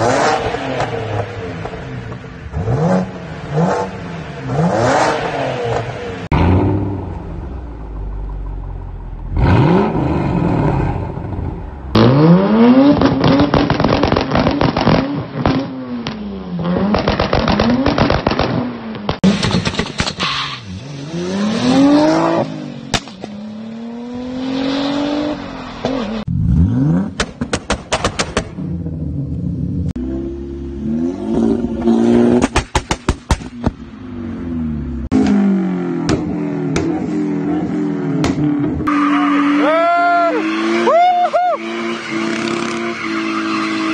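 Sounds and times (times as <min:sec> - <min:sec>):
car engines revving hard: 0:00.0 - 0:07.5, 0:09.2 - 0:19.4, 0:20.5 - 0:43.9
exhaust crackles and bangs: 0:12.9 - 0:16.2, 0:16.8 - 0:20.2, 0:36.0 - 0:37.0.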